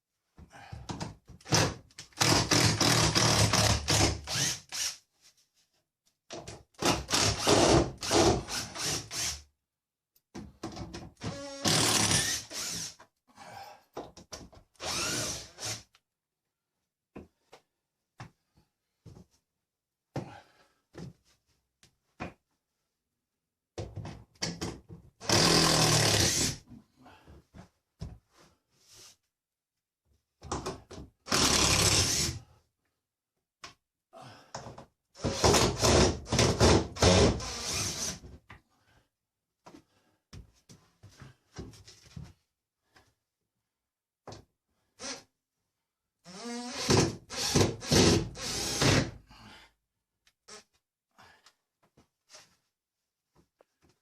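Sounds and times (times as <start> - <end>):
power drill running: 14.8 - 15.7.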